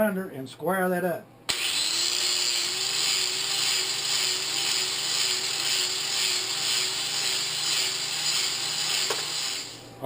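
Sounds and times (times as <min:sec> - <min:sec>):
electric grinder whine: 0:01.5 - 0:09.8
grinding hiss: 0:02.1 - 0:09.9.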